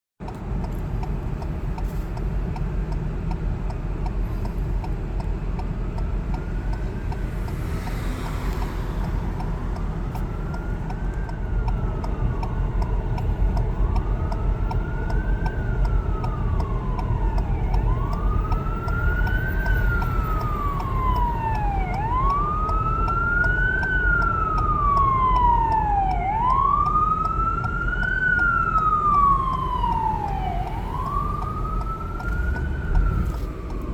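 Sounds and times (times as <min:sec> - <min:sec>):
engine and traffic rumble: 0:00.2 - 0:33.9
fire truck siren wailing: 0:04.8 - 0:33.9.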